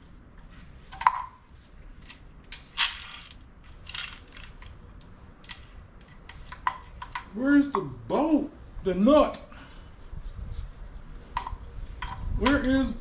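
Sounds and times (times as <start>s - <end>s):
small metal parts clinking: 2.0s - 4.8s.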